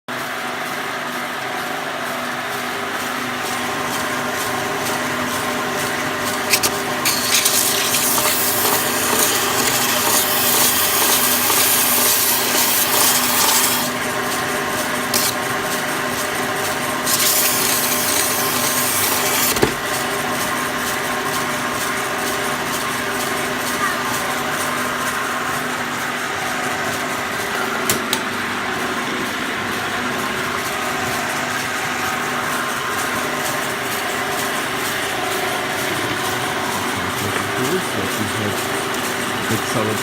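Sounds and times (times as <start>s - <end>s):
belt sander motor hum: 2.4s - 40.0s
sanding rasping hiss: 3.5s - 14.0s, 17.0s - 19.6s.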